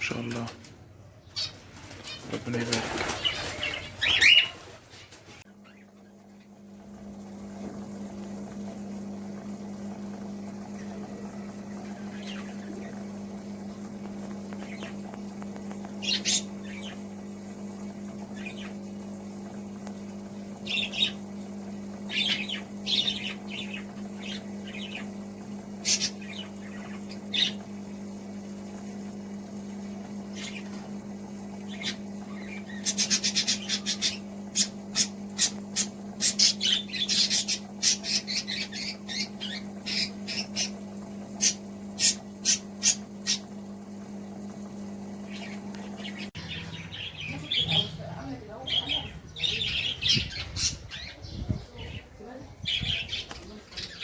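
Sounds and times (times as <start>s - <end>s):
birds chirping and squawking: 0.0s - 6.2s, 10.7s - 13.3s, 14.2s - 17.2s, 17.9s - 18.8s, 20.6s - 27.7s, 30.3s - 31.0s, 31.6s - 43.6s, 45.2s - 54.0s
low electrical hum: 0.0s - 54.0s.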